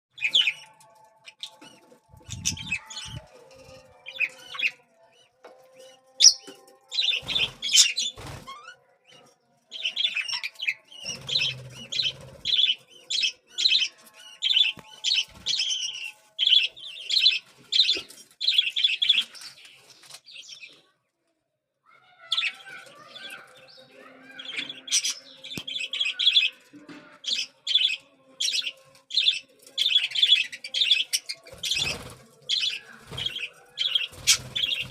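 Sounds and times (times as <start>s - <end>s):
chicks begging chirps: 0.2s - 4.9s, 22.2s - 26.6s, 27.2s - 34.9s.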